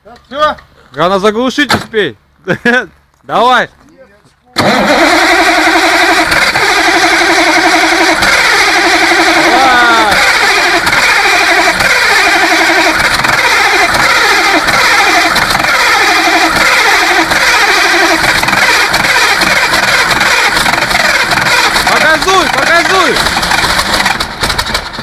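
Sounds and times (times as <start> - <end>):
engine running and surging: 4.6 - 25.0.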